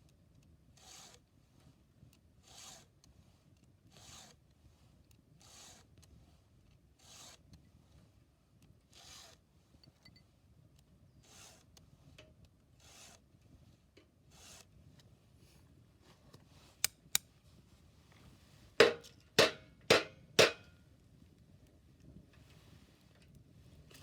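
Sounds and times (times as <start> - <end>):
file rasping on chainsaw chain: 0.8 - 1.2, 2.4 - 3.0, 3.9 - 4.4, 5.4 - 5.9, 7.0 - 7.4, 8.9 - 9.4, 11.2 - 11.7, 12.8 - 13.2, 14.3 - 14.7.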